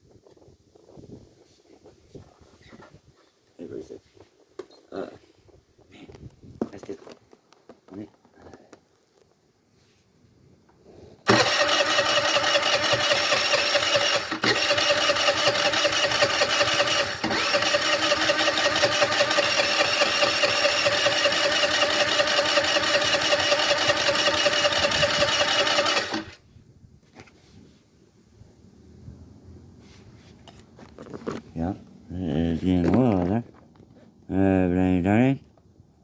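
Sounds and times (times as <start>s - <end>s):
electric starter cranking engine: 11.2s - 26.4s.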